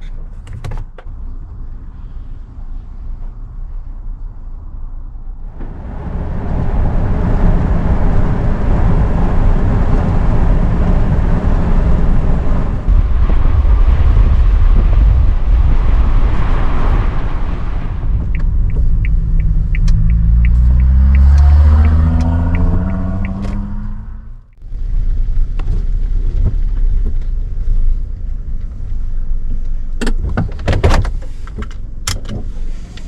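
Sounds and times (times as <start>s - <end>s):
strong wind buffeting microphone: 5.4s - 28.4s.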